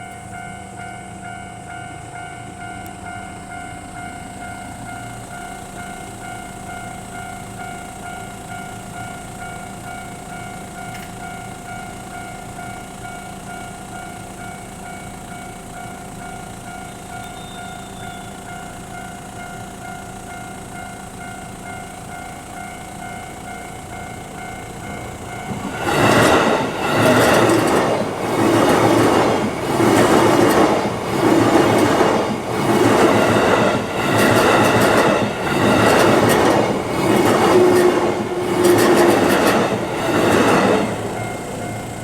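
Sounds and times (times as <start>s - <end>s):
level-crossing warning bell: 0.0s - 42.0s
train wheels clattering over rail joints: 24.7s - 42.0s.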